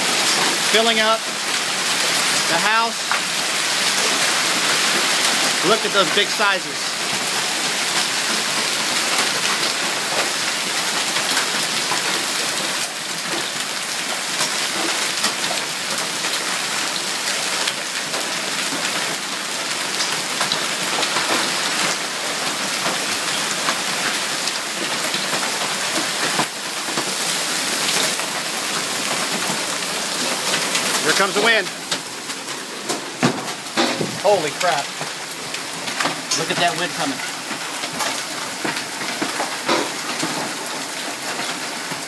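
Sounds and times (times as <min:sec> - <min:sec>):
heavy rain hissing: 0:00.0 - 0:10.3, 0:23.3 - 0:42.0
hailstones striking: 0:00.1 - 0:42.0.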